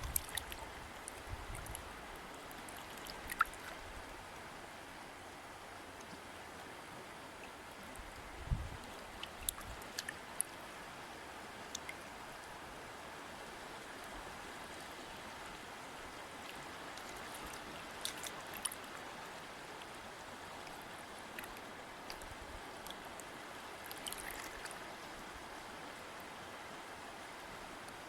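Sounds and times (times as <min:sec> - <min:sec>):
water splashing ticks: 0:00.0 - 0:03.8, 0:08.9 - 0:10.6, 0:11.6 - 0:12.1, 0:16.4 - 0:19.0, 0:20.6 - 0:24.9
river water rushing: 0:00.0 - 0:28.0.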